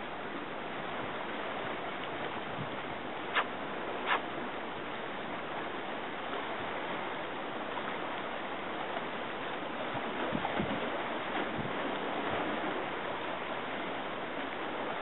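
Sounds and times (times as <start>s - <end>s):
waves washing: 0.0s - 15.0s.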